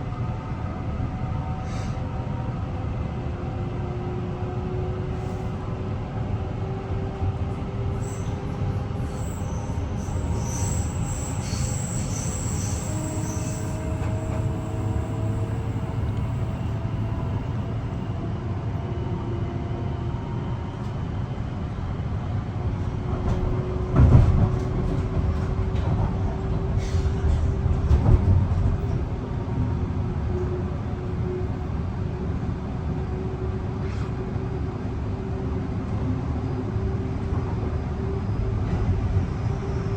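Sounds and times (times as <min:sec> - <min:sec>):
train rumble: 0:00.0 - 0:39.9
high wheel squeal: 0:08.0 - 0:16.1.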